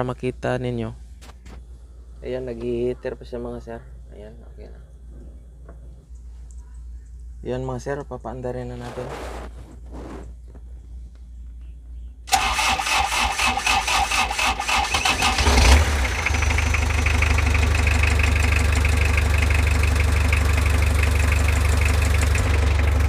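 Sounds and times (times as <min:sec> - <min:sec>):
diesel engine idling: 0:12.3 - 0:23.0
starter cranking engine: 0:12.3 - 0:23.0.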